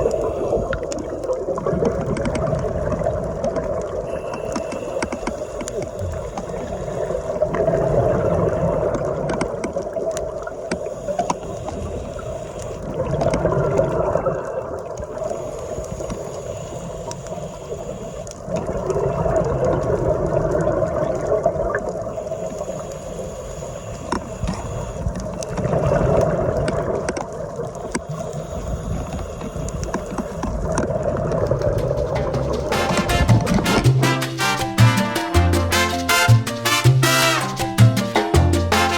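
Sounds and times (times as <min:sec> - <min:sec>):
scuba regulator exhaled bubbles: 0:00.0 - 0:15.5, 0:18.5 - 0:22.2, 0:25.5 - 0:27.1
low rumble of water: 0:00.0 - 0:34.8.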